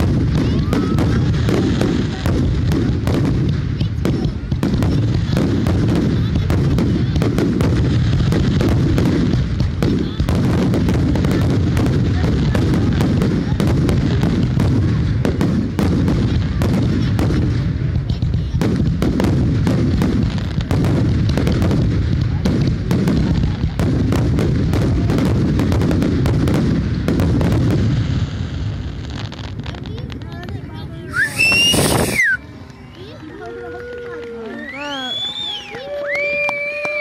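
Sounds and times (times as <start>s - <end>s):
firework shells bursting: 19.1s - 32.8s.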